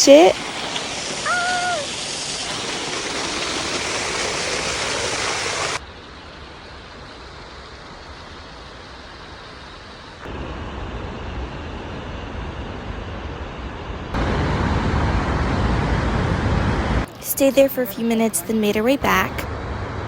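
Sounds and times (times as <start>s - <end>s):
waterfall splashing: 0.0s - 5.8s.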